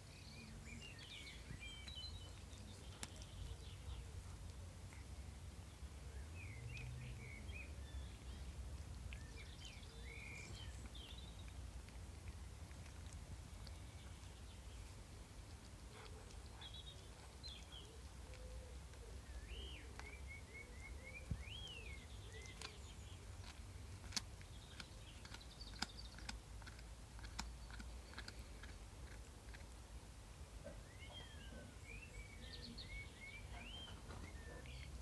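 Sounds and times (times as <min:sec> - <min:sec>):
bird chirping: 0:00.0 - 0:05.0, 0:05.7 - 0:11.7, 0:12.3 - 0:28.8, 0:30.6 - 0:35.0
pet crunching a snack: 0:00.0 - 0:35.0.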